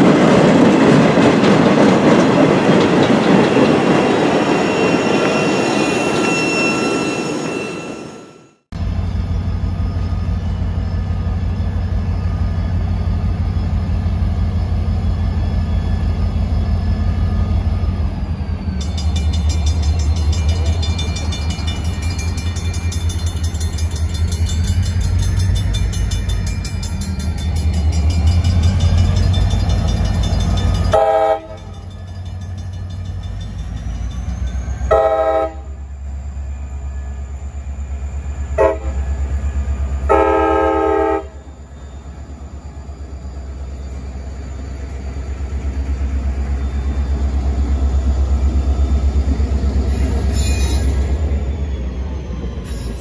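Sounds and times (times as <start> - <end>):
diesel locomotives rumbling: 0.0 - 53.0
grade-crossing bell ringing: 3.3 - 8.6, 9.7 - 53.0
locomotive horn blasts: 30.9 - 31.8, 34.9 - 35.8, 38.6 - 39.0, 40.1 - 41.4.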